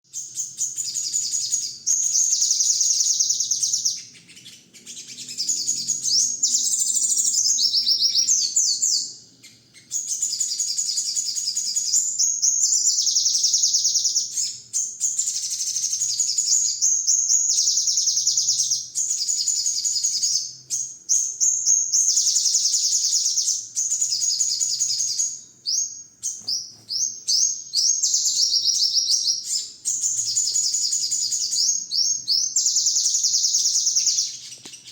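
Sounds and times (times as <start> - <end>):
songbird chattering trills: 0.7 - 11.3.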